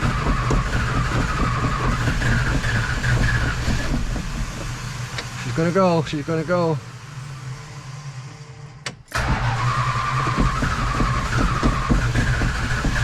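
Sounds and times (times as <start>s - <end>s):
car engine starting and running: 0.0s - 13.0s.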